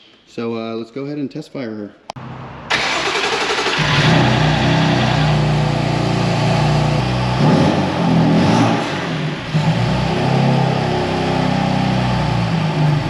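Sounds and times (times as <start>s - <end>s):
car engine running: 2.2s - 13.0s.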